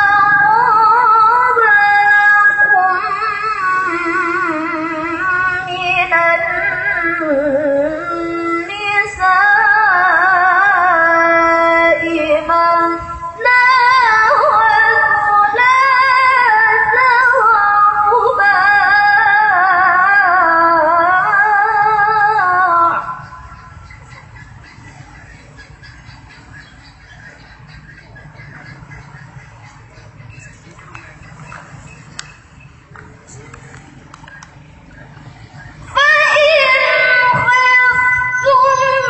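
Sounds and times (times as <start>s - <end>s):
person reciting melodiously: 0.0s - 23.5s, 35.7s - 39.0s.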